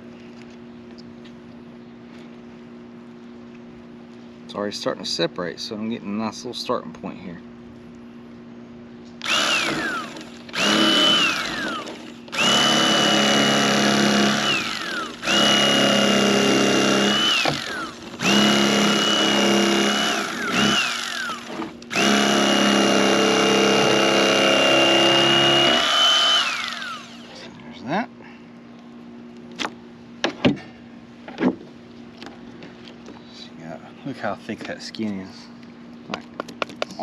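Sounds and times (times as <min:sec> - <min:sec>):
electric knife motor whine: 0:09.2 - 0:27.4.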